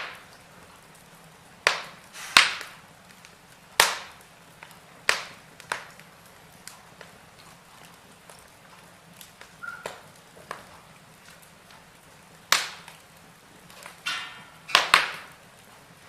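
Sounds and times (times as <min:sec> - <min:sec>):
wood fire crackling: 0:00.0 - 0:16.0
brief hiss: 0:02.2 - 0:02.5.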